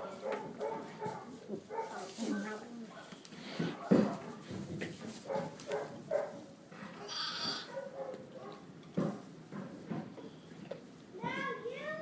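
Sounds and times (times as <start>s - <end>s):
goats bleating: 7.1s - 7.7s.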